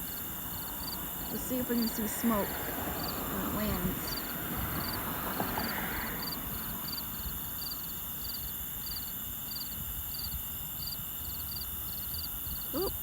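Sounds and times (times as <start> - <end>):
low outdoor rumble: 0.0 - 7.5
cricket chirping: 0.0 - 13.0.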